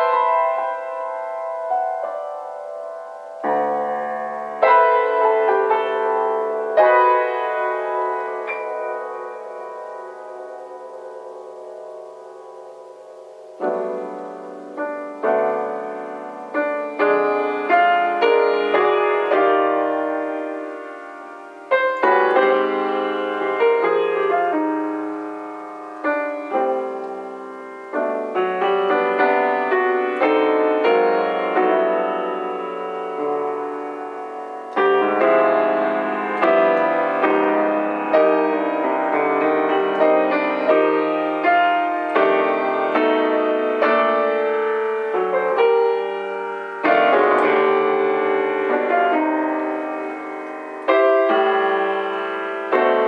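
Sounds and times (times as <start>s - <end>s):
solo piano jazz ballad: 0.0s - 53.0s.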